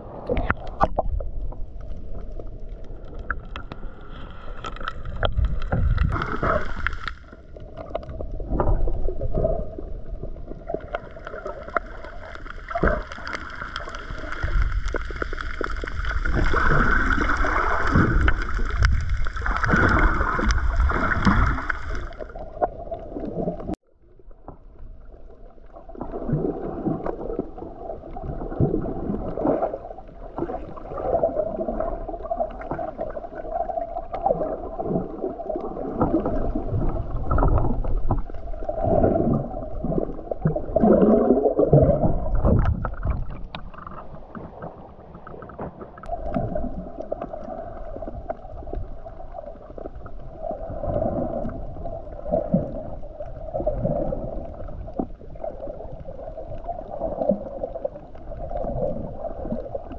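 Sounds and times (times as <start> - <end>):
water splashing against hull: 0.0 - 59.9.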